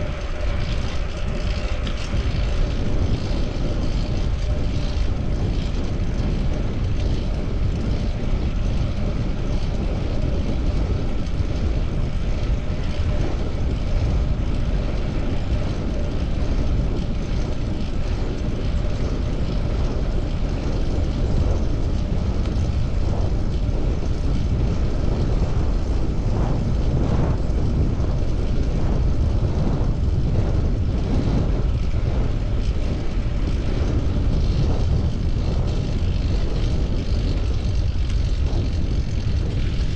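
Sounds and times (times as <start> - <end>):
road noise: 0.0 - 39.9
wind on microphone: 0.0 - 39.9.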